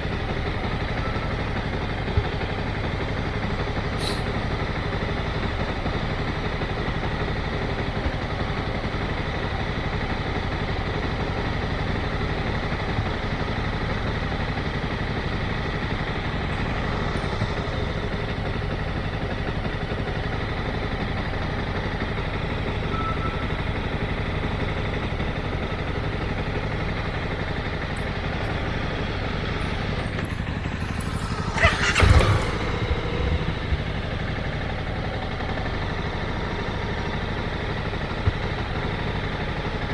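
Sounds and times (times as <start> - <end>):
motorcycle engine running: 23.7 - 39.9
rush of noise: 28.4 - 35.1
thump: 30.1 - 33.9.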